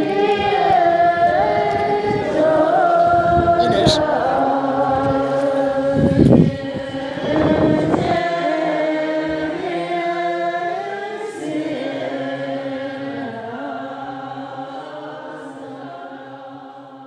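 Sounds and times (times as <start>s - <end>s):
voices chanting in held tones: 0.0s - 16.9s.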